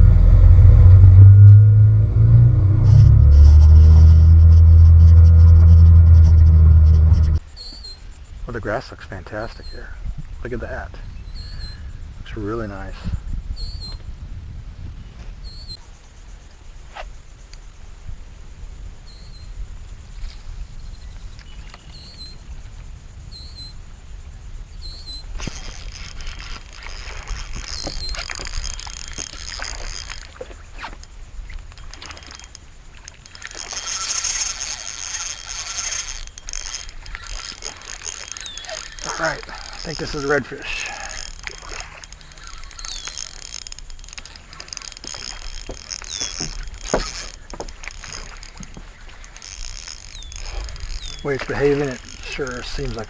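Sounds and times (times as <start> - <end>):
wind rumbling on microphone: 0.0 - 8.6, 9.7 - 53.0
fishing reel: 2.8 - 6.5, 24.8 - 53.0
water splashing against boat hull: 25.4 - 53.0.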